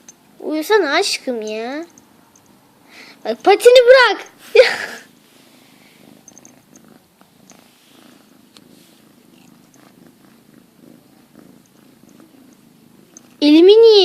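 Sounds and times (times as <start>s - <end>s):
cat purring: 0.0s - 14.0s.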